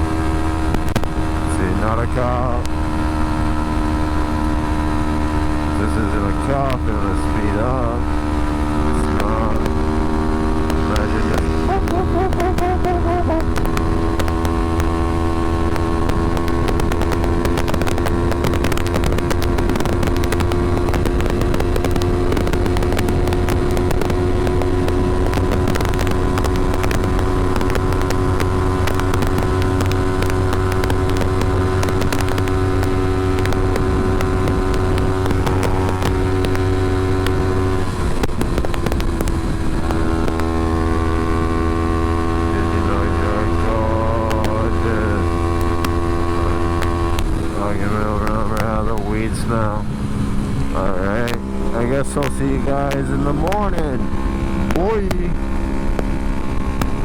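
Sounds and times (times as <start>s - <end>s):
wind noise on microphone: 0.0s - 43.0s
motorcycle engine running: 0.0s - 57.0s.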